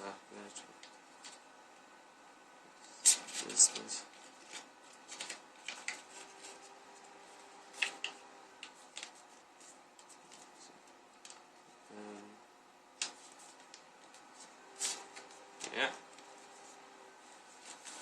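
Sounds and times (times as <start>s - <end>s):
paper crinkling and creasing: 3.2s - 11.5s, 17.5s - 18.0s.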